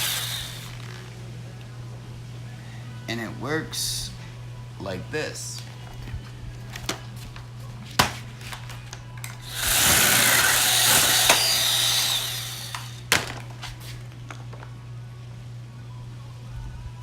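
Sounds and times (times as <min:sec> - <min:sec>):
mini chainsaw cutting branch: 0:00.0 - 0:01.0, 0:09.4 - 0:13.1.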